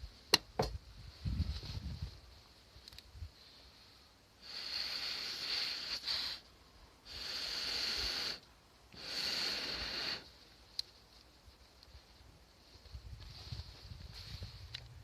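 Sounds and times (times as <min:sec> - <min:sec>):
breathy blowing through a pipe: 0:09.0 - 0:10.3.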